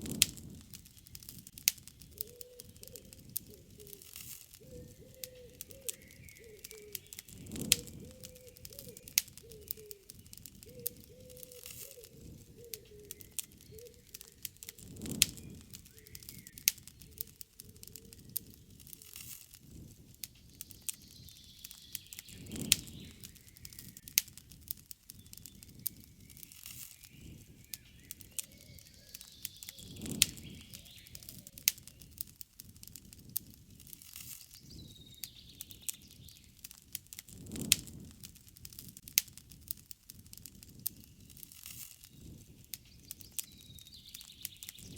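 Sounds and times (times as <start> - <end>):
campfire crackling and popping: 0.0 - 44.9
birds chirping: 0.4 - 19.0, 20.3 - 24.2, 25.1 - 32.3, 34.4 - 36.6, 40.9 - 44.9.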